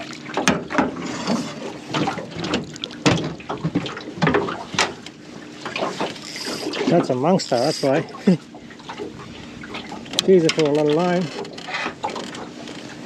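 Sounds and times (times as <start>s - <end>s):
squid squirting water: 0.0s - 10.3s
water splashes: 0.0s - 13.0s.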